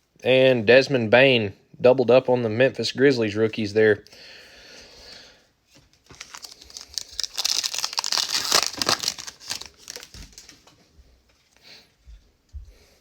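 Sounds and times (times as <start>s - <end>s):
plastic wrapper crinkling and tearing: 6.0s - 10.7s.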